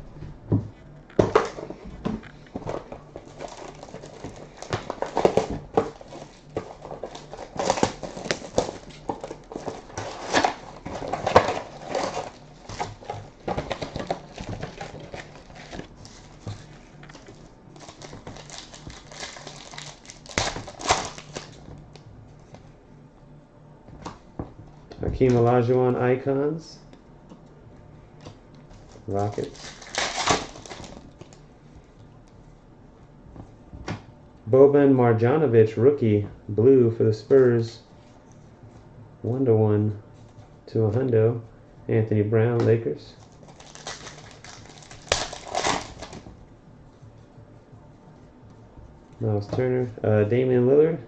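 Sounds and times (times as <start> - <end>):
cards rustling: 2.3 - 21.7, 28.8 - 31.4
foil wrappers crinkling and tearing: 3.2 - 17.2, 17.8 - 21.7, 28.8 - 31.4, 43.2 - 46.3.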